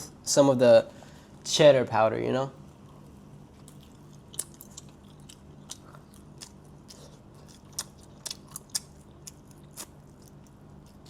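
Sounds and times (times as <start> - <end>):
person chewing with crunches: 2.7 - 11.0.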